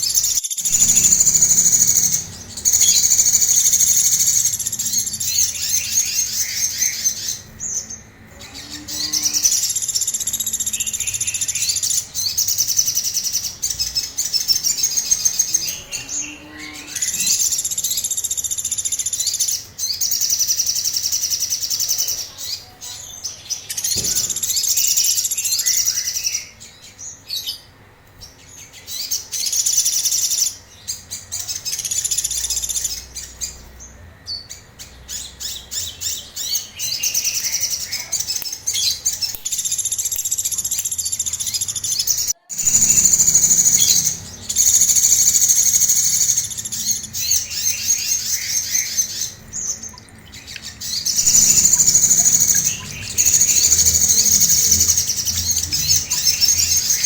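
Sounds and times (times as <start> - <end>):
songbird high rapid trilling: 0.0 - 22.2, 35.1 - 57.0.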